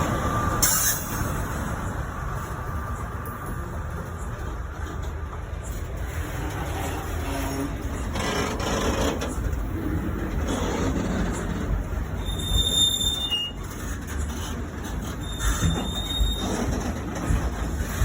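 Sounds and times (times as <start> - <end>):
train wheels rumbling on rails: 0.0 - 18.0
high-pitched wheel squeal: 12.2 - 13.9, 15.0 - 17.0.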